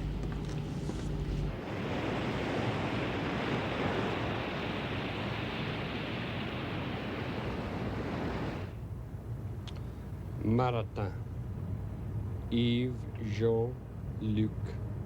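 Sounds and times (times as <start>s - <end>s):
wind: 0.0s - 15.0s
sea water rushing past ship: 1.2s - 8.8s.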